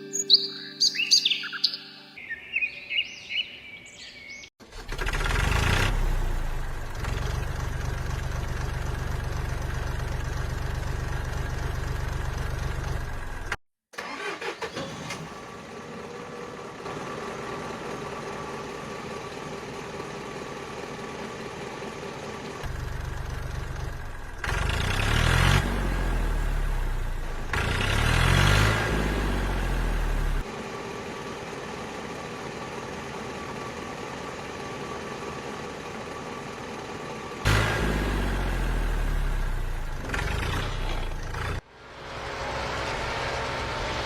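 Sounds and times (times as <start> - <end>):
birds chirping: 0.0 - 4.6
vehicle engine running: 0.4 - 14.2, 15.2 - 44.0.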